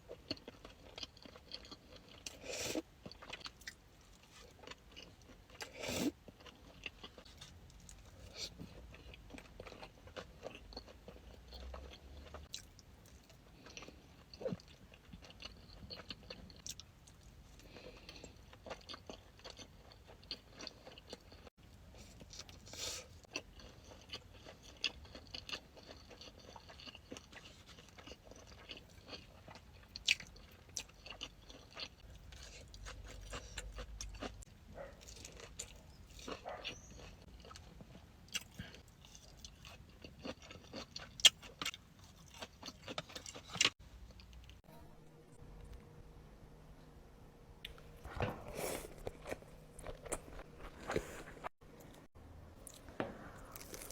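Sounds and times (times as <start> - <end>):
chewing with wet clicks: 0.1 - 2.4, 3.0 - 3.8, 4.5 - 21.5, 23.2 - 44.7.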